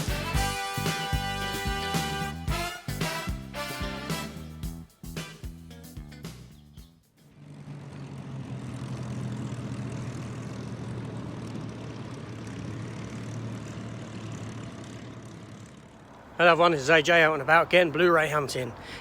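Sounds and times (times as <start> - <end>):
propeller aircraft engine drone: 7.3 - 19.0.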